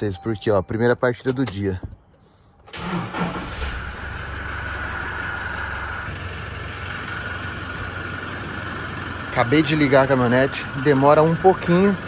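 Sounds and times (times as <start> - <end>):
diesel engine starting and idling: 2.6 - 12.0.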